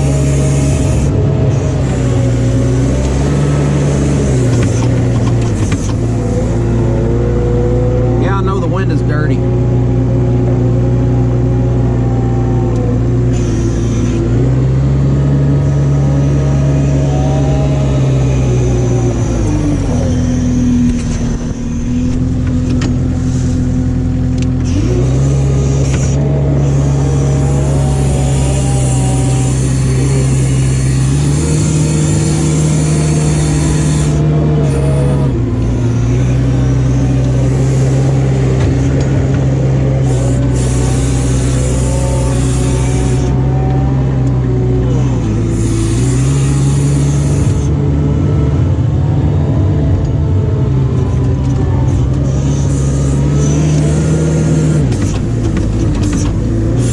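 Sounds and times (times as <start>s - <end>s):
vehicle engine revving: 0.0s - 56.9s.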